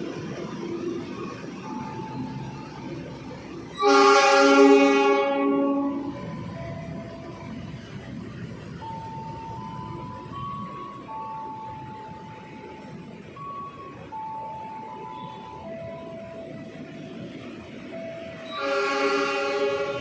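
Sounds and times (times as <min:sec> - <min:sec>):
train horn blast: 0:03.7 - 0:06.3, 0:18.4 - 0:20.0.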